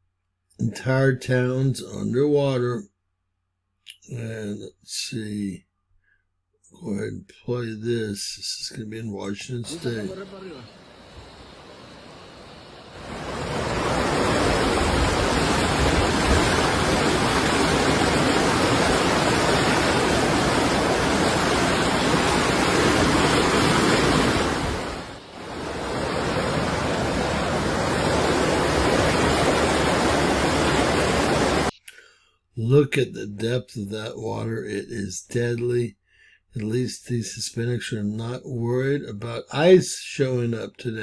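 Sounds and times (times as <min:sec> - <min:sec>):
floodwater rushing: 0:09.6 - 0:31.7.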